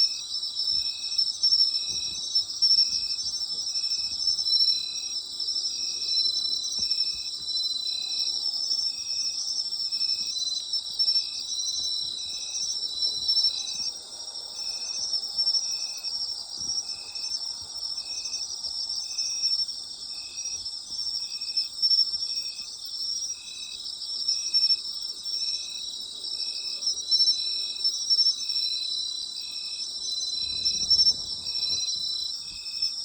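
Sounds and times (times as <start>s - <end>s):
insects trilling: 0.0s - 33.0s
low-pitched insect chirping rhythmically: 0.0s - 33.0s.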